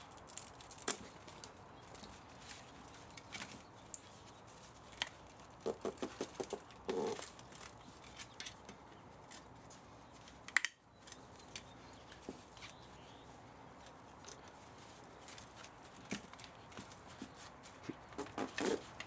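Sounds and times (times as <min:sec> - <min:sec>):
hand tools clicking on metal: 0:18.0 - 0:19.0.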